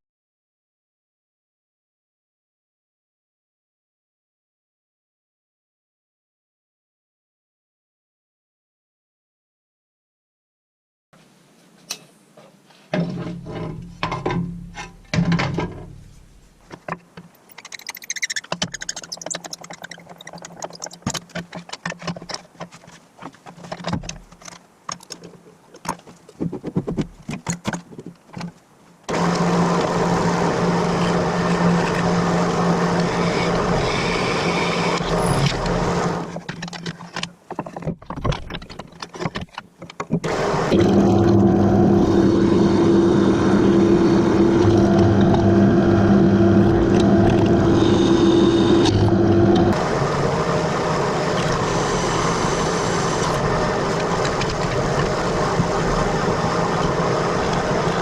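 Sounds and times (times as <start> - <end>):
power tool running: 29.1 - 36.3, 40.2 - 58.0.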